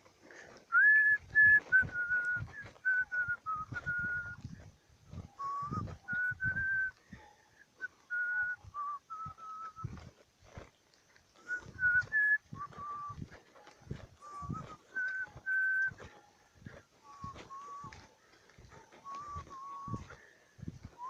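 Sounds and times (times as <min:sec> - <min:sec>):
person whistling a slow tune: 0:00.7 - 0:07.0, 0:07.8 - 0:10.0, 0:11.4 - 0:13.3, 0:14.2 - 0:16.1, 0:17.0 - 0:18.1, 0:19.0 - 0:20.3.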